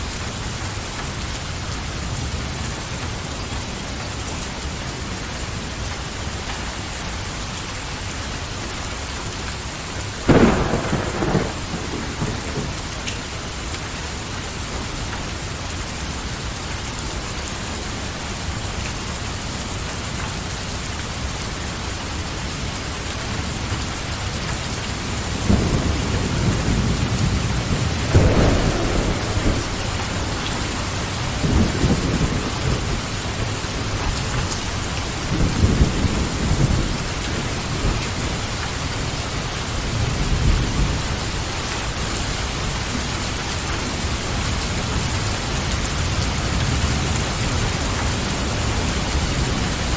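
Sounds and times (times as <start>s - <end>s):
steady rain falling: 0.0s - 49.9s
rolling thunder: 10.3s - 13.7s, 25.3s - 38.6s.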